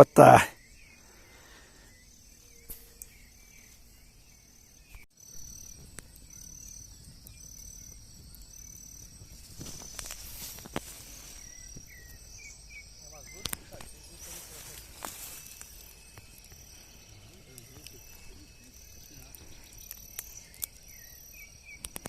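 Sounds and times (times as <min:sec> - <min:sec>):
crickets chirping: 0:00.0 - 0:22.0
faint clicks and rustles: 0:05.7 - 0:12.2, 0:13.2 - 0:21.2.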